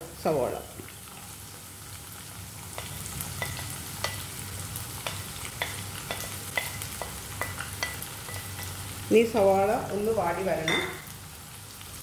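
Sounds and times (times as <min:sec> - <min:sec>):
onion sizzling in hot oil: 0:00.0 - 0:12.0
spatula tapping and scraping plate: 0:05.0 - 0:08.8.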